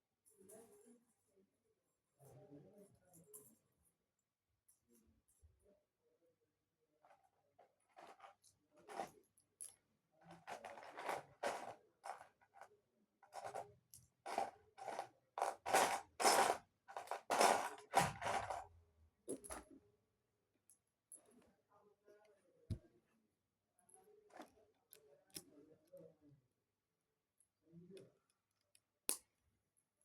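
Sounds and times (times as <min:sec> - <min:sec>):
plastic toy pieces rummaged: 0:10.4 - 0:12.6, 0:14.3 - 0:18.6.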